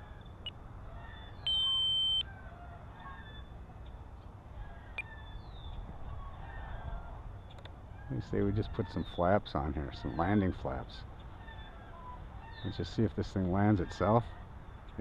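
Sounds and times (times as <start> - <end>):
high-pitched timer beep: 1.5 - 2.2.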